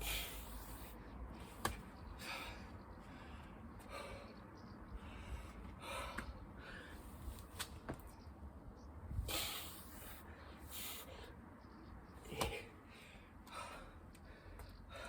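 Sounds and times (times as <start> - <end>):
man breathing hard: 2.2 - 7.4, 9.1 - 11.5, 12.2 - 15.0.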